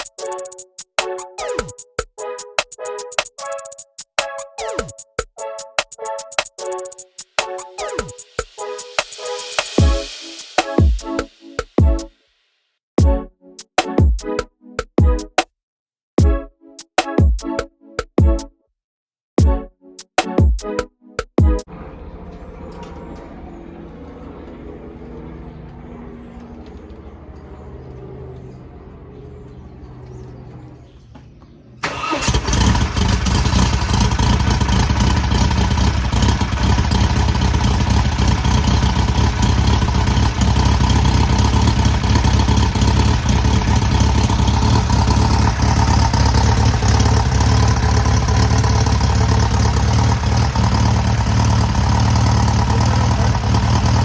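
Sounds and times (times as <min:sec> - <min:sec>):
background music: 0:00.0 - 0:12.2, 0:13.0 - 0:15.4, 0:16.2 - 0:18.6, 0:19.4 - 0:25.7
car engine starting and running: 0:21.7 - 0:54.0.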